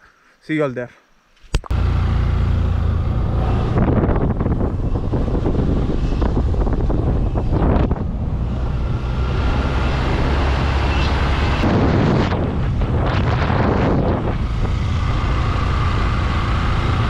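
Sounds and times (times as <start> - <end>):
motorcycle engine running: 1.7 - 9.0
wind rushing over microphone: 2.7 - 17.0.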